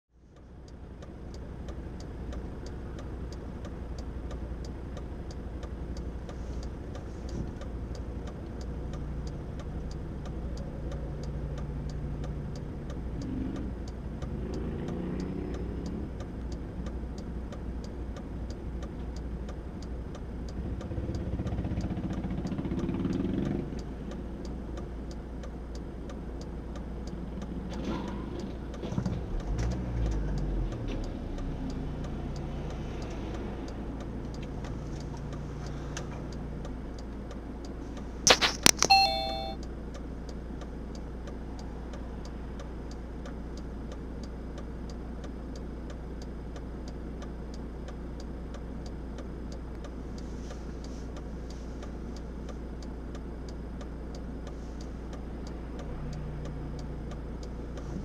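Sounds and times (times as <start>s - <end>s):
traffic: 0.1s - 58.0s
steady even ticks: 0.3s - 27.8s, 39.5s - 57.9s
engines accelerating: 13.1s - 16.2s.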